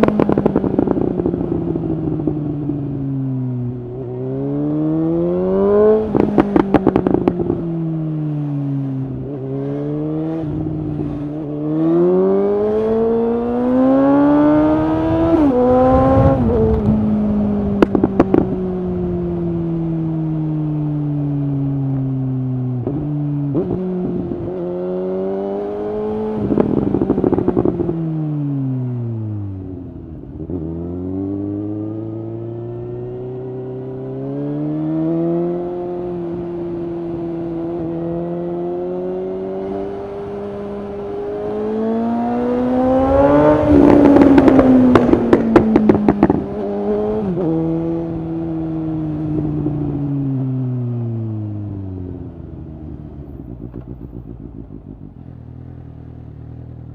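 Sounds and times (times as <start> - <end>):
motorcycle engine revving: 0.0 - 56.9
exhaust crackling and popping: 15.2 - 19.0, 43.5 - 47.3, 52.4 - 56.9.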